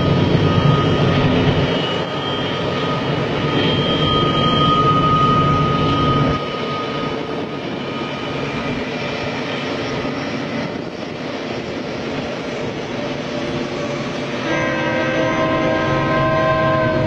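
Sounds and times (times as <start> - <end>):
diesel locomotives rumbling: 0.0 - 17.0
locomotive air horn chord: 14.3 - 17.0.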